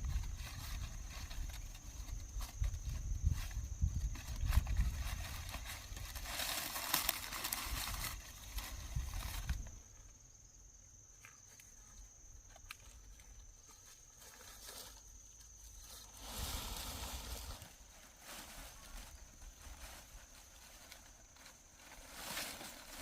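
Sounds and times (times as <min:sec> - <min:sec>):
rustling and crunching: 0:00.0 - 0:10.2, 0:11.2 - 0:23.0.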